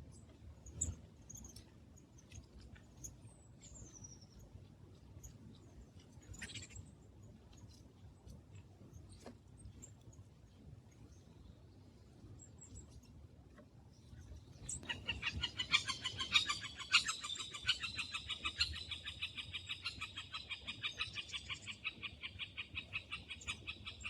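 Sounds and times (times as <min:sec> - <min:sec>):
songbird trilling: 0:14.8 - 0:24.0.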